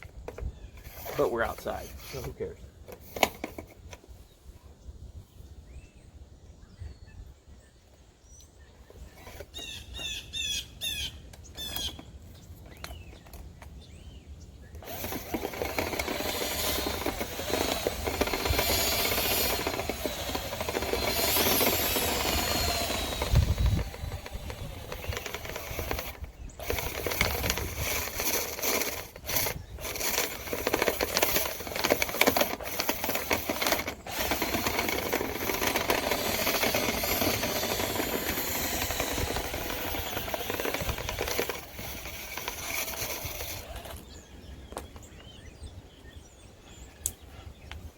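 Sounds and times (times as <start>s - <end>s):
power drill motor: 0.3s - 4.0s, 11.6s - 12.0s, 14.7s - 44.1s
brush scraping duct walls: 14.9s - 43.9s.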